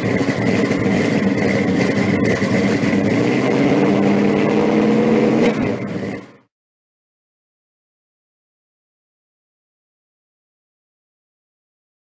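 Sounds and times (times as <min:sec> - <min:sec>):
car engine running: 0:00.0 - 0:06.5.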